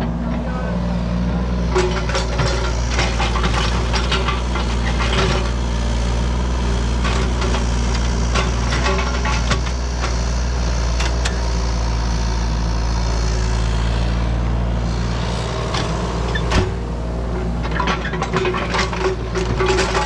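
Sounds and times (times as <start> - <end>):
heavy engine idling: 0.0 - 20.0.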